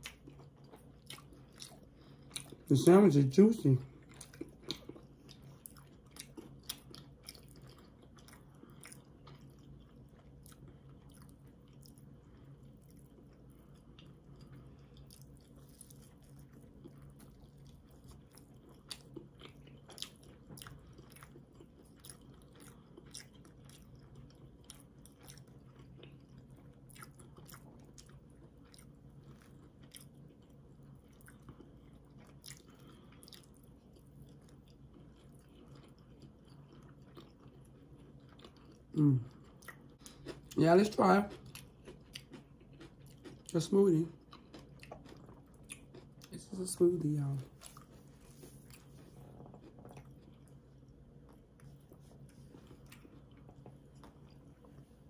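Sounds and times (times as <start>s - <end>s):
people chewing: 0.0s - 2.7s, 3.8s - 55.0s
steady low hum: 0.0s - 55.0s.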